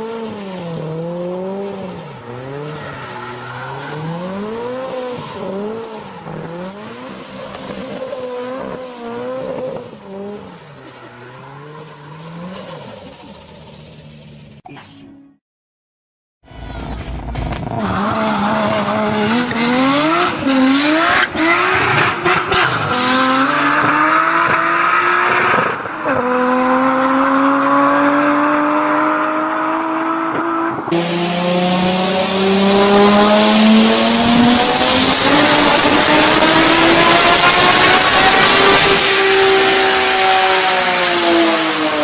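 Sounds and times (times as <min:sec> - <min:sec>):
car engine accelerating hard: 0:16.8 - 0:42.0.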